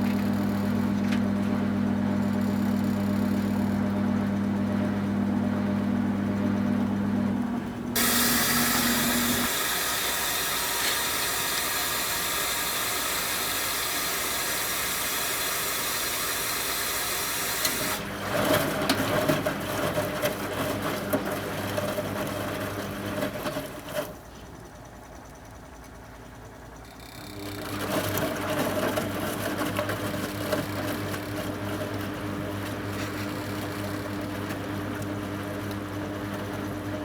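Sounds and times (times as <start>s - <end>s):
drum motor humming: 0.0s - 23.8s
washing machine rushing hiss: 7.8s - 18.3s.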